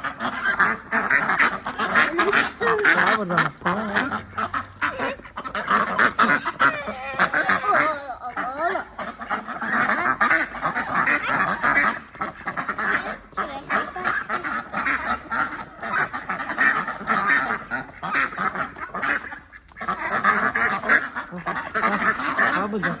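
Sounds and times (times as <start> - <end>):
waterfowl calling: 0.0 - 23.0.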